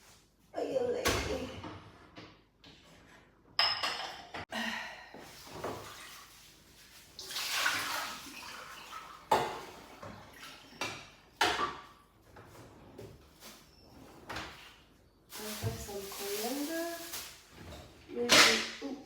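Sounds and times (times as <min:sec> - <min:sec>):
dishes and utensils clattering: 0:03.5 - 0:04.5
tap water running: 0:05.1 - 0:11.7.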